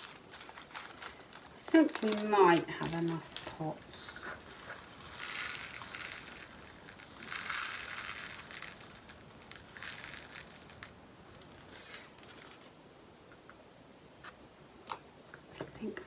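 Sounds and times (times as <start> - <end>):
beads pouring into plastic pot: 0.0 - 12.6.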